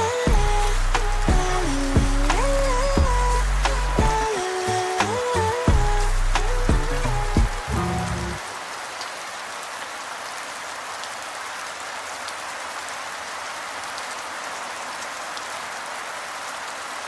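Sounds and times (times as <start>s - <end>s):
raindrops ticking: 0.0s - 8.4s
steady rain falling: 0.0s - 17.0s.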